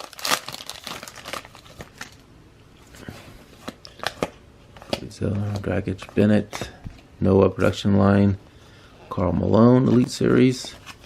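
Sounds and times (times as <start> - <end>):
foil wrapper crinkling: 0.0 - 2.2.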